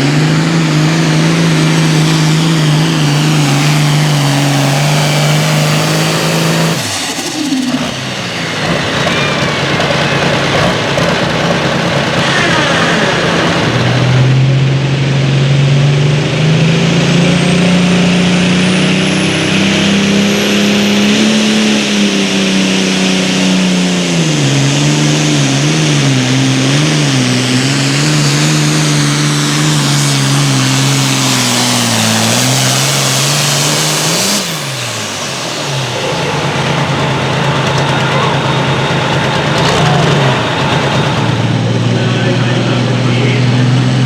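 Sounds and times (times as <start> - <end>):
tractor diesel engine at full throttle: 0.0 - 44.0.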